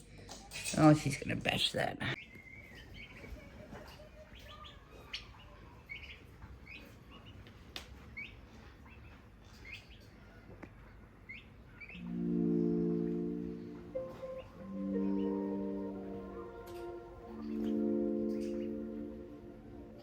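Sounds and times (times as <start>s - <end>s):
music: 12.0s - 20.0s.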